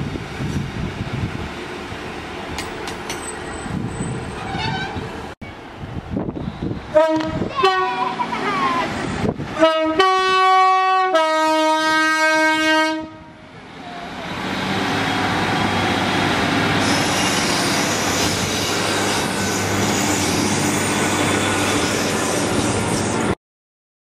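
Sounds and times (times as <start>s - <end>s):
train rumbling past: 0.0s - 23.4s
two-tone train horn: 6.9s - 8.1s, 9.6s - 13.4s.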